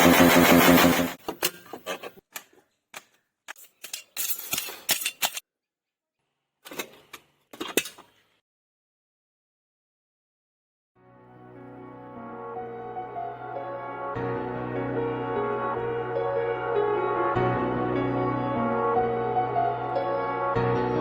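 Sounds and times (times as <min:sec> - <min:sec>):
motorcycle engine revving: 0:00.0 - 0:01.2.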